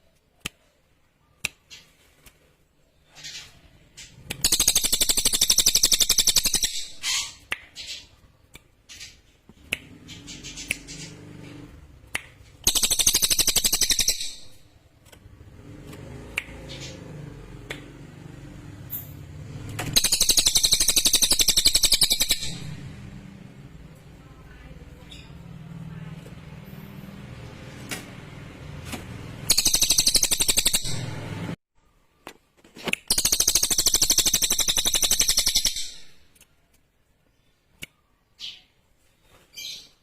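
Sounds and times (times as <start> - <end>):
bird chirps: 2.8 - 15.4, 18.8 - 25.7, 29.4 - 32.3, 33.1 - 36.4, 37.2 - 40.0
songbird trilling: 29.5 - 31.0.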